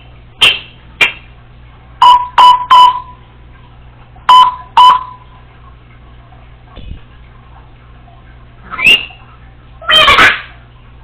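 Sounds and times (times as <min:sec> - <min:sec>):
parrot imitating electronic beeps: 0:02.0 - 0:03.2, 0:04.3 - 0:05.2, 0:09.8 - 0:10.4.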